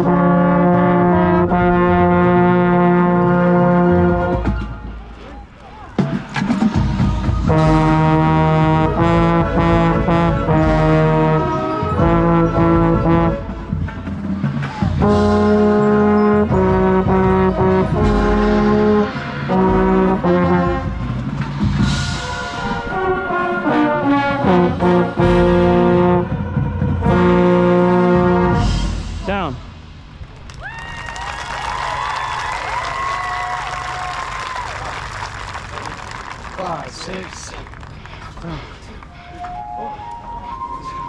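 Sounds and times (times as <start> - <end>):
brass band playing chords: 0.0 - 30.2
low drums: 0.1 - 30.6.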